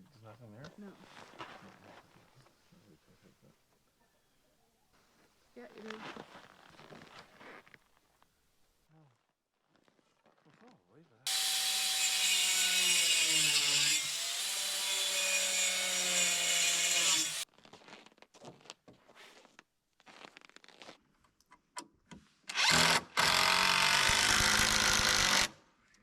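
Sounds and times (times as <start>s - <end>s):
power drill driving screws: 11.3s - 17.4s, 22.5s - 25.6s.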